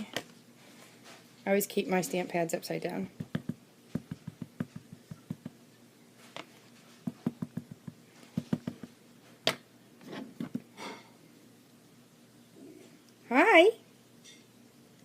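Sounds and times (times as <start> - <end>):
ink pad tapping on stamp: 3.2 - 5.6, 7.1 - 8.9.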